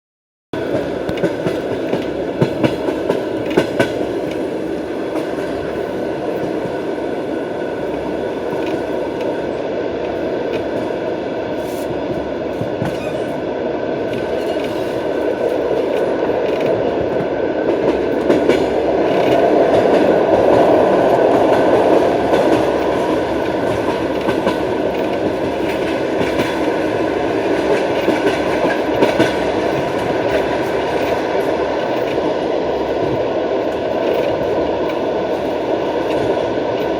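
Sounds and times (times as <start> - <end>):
train wheels rumbling on rails: 0.6 - 36.9
wheels clacking over rail joints: 14.1 - 36.9.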